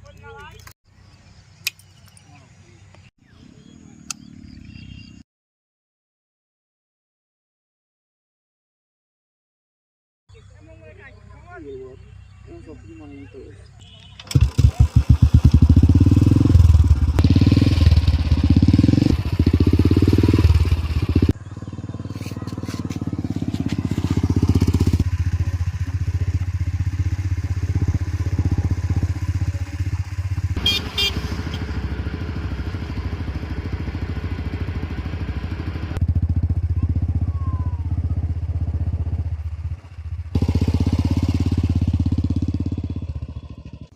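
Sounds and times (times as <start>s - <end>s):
motorcycle engine revving and idling: 13.8s - 43.9s.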